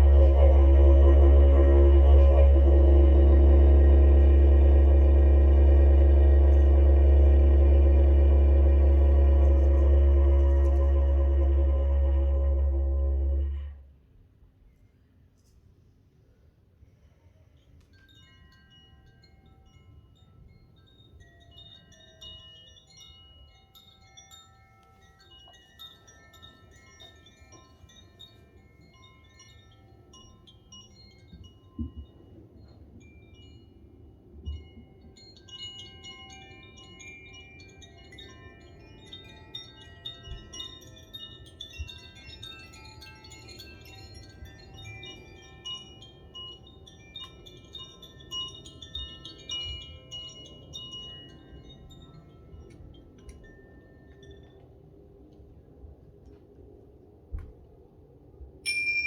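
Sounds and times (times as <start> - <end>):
chimes ringing softly: 17.3 - 54.9, 58.7 - 59.0.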